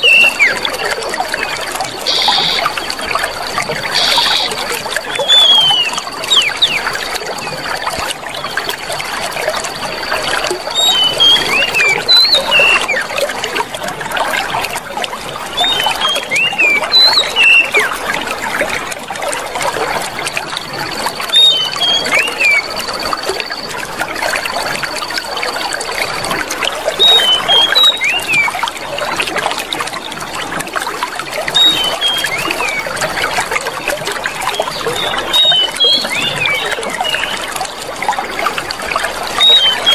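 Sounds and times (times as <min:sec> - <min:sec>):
bird whistled chirps: 0:00.0 - 0:00.6, 0:04.0 - 0:07.2, 0:10.7 - 0:13.1, 0:15.6 - 0:18.0, 0:21.3 - 0:23.7, 0:27.0 - 0:28.6, 0:31.5 - 0:33.0, 0:34.5 - 0:37.5, 0:39.4 - 0:39.9
water trickling: 0:00.0 - 0:39.9.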